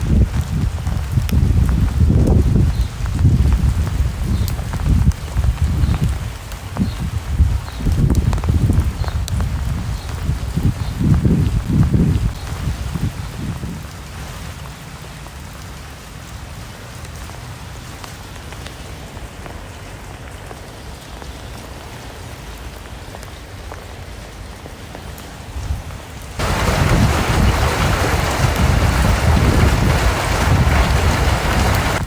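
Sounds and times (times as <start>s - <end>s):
light rain: 0.0s - 32.0s
rain drop ticks: 0.0s - 32.0s
loud dense rushing noise: 26.4s - 32.0s.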